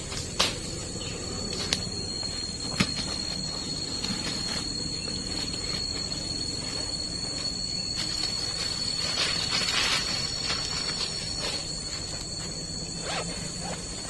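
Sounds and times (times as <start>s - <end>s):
constant hiss: 0.0s - 14.0s
high-pitched insect drone: 0.0s - 14.0s
rustling scraping noise: 2.9s - 14.0s.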